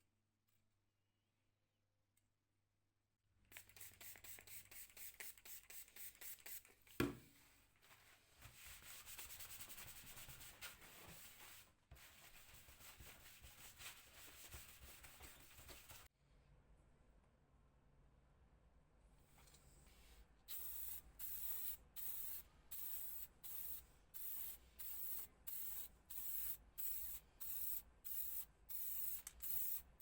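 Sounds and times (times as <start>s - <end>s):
hand sanding a surface: 8.5s - 16.1s.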